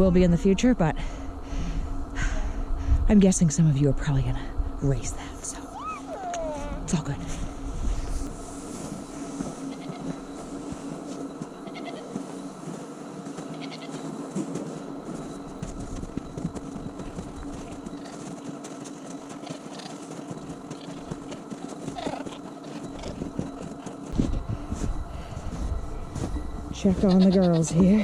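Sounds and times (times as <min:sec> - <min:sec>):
low rumble: 0:00.0 - 0:09.6, 0:22.9 - 0:27.2
steady low hum: 0:00.0 - 0:28.0
goats bleating: 0:09.7 - 0:10.2, 0:11.6 - 0:12.1, 0:13.5 - 0:14.0, 0:26.9 - 0:27.8.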